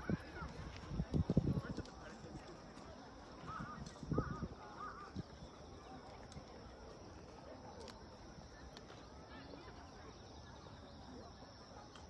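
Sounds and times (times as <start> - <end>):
footsteps on dirt path: 0.0 - 9.2
open-air ambience: 0.0 - 12.0.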